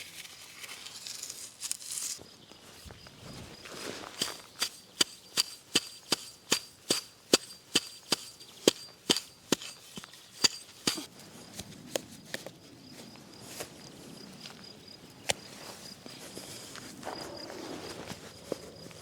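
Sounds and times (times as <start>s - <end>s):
high insect trill: 1.1s - 11.6s
axe chopping wood: 4.2s - 11.1s.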